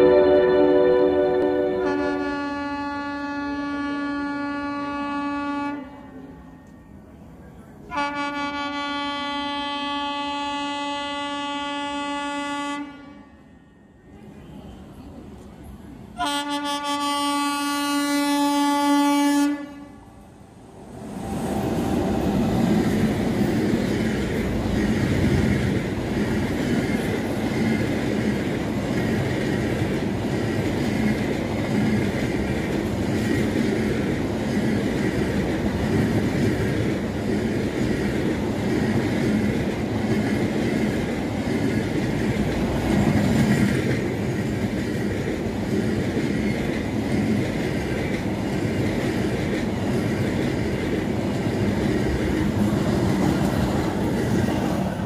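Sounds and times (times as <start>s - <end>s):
train wheels clattering on rails: 21.1s - 55.0s.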